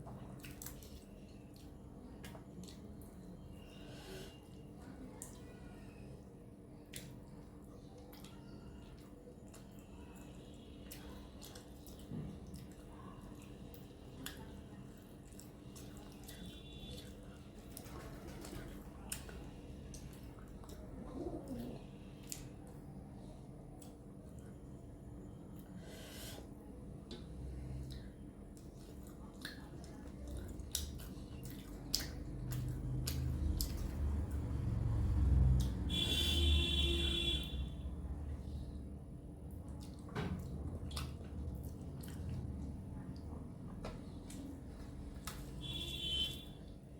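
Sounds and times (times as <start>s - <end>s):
wet chewing sounds: 0.0s - 24.8s, 25.4s - 46.9s
lip-smacking clicks: 30.6s - 34.0s.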